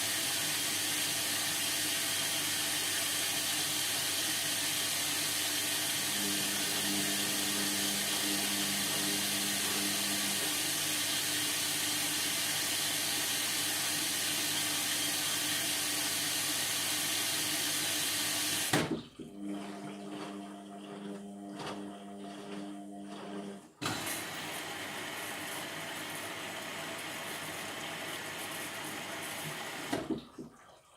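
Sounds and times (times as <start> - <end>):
water hissing through inlet: 0.0 - 18.7
washing machine humming: 0.0 - 30.6.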